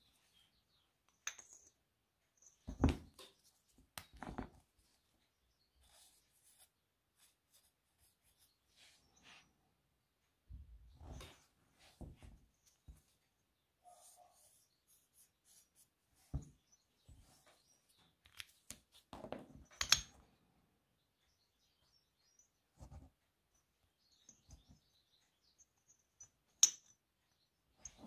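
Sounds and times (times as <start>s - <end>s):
metal parts clicking and knocking: 1.2s - 1.8s.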